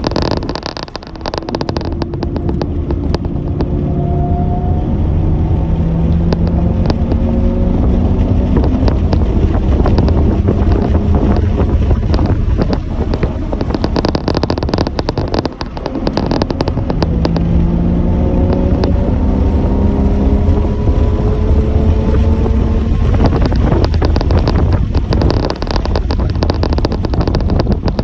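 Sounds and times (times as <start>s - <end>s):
wind rumble on microphone: 0.0s - 28.0s
engine rising in pitch: 2.0s - 11.3s, 15.8s - 23.4s.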